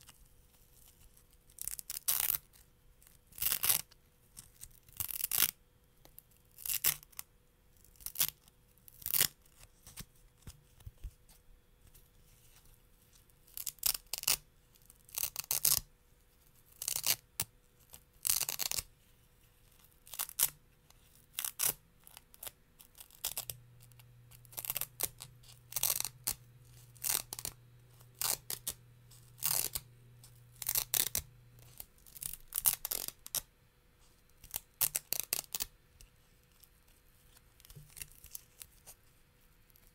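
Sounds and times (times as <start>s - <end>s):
hook-and-loop fastener ripping: 0.8s - 5.6s, 6.5s - 7.3s, 7.9s - 10.1s, 13.5s - 14.4s, 15.0s - 15.9s, 16.7s - 17.2s, 17.8s - 18.9s, 19.7s - 33.4s, 34.4s - 35.7s, 37.6s - 38.9s.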